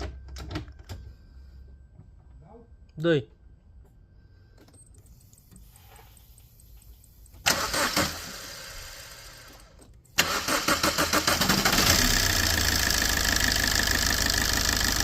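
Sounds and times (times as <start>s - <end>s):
diesel engine starting and rattling: 7.4s - 15.0s.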